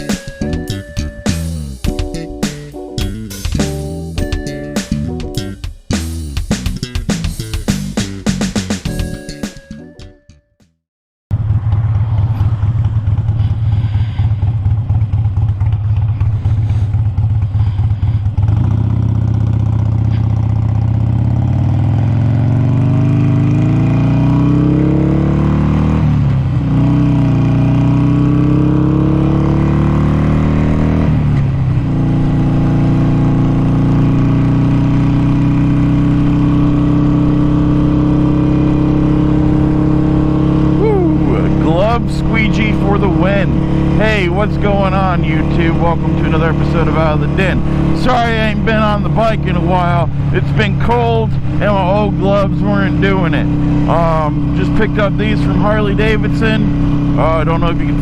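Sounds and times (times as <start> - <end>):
motorcycle engine idling: 11.3 - 22.1
motorcycle accelerating through gears: 11.3 - 58.0.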